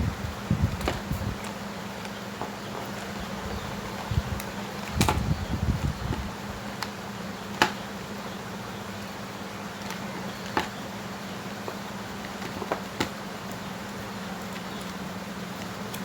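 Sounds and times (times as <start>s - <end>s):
steady low hum: 0.0s - 16.0s
knocks and clatter of plastic parts: 0.6s - 3.2s, 4.8s - 6.3s, 9.8s - 10.8s, 11.6s - 13.2s.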